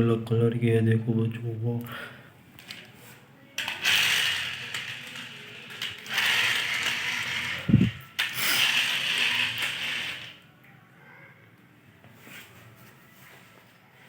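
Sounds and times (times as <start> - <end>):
toy gear mechanism whirring: 3.6 - 10.4.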